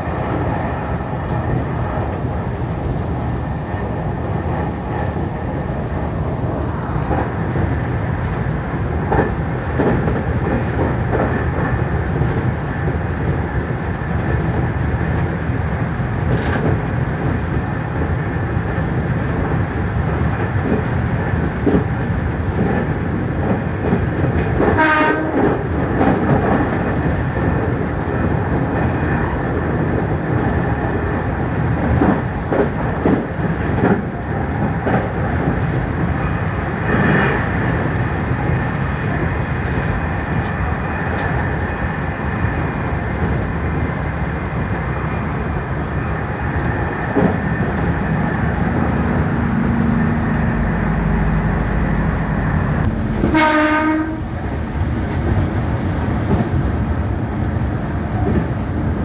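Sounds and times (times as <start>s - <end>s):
train running noise: 0.0s - 59.0s
horn-like tone: 53.0s - 54.4s.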